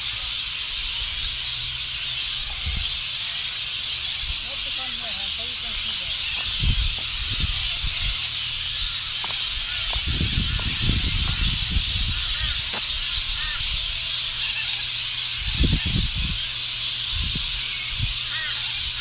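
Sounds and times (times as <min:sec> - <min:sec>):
birds chirping: 0:00.0 - 0:19.0
wind buffeting microphone: 0:02.4 - 0:03.1, 0:04.2 - 0:14.4, 0:15.3 - 0:19.0.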